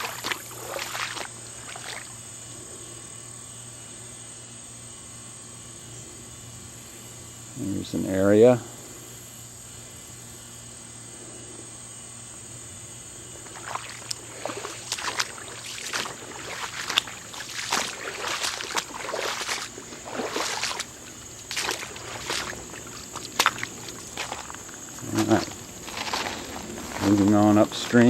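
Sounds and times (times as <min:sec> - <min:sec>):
footsteps crunching on creek bank: 0:00.0 - 0:02.2, 0:13.4 - 0:28.0
faint steady hiss: 0:12.3 - 0:28.0.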